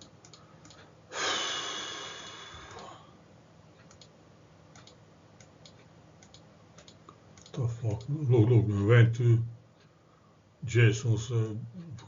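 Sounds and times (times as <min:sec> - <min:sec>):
person sighing: 0:01.1 - 0:03.2.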